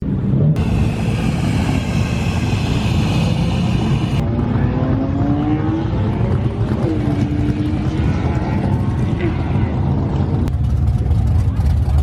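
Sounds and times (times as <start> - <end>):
car engines rumbling: 0.0 - 12.0
high hissing: 0.6 - 4.2
engine accelerating: 0.6 - 6.6.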